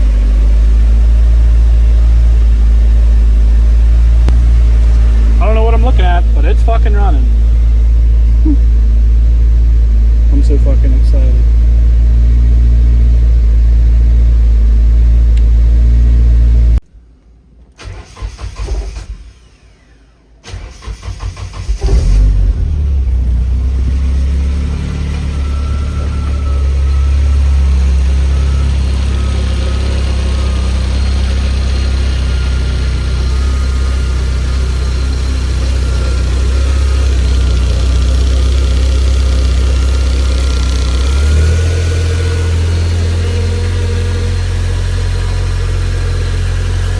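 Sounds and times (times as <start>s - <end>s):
car engine running: 0.0s - 16.8s, 21.0s - 46.9s
engine cranking: 17.8s - 46.9s.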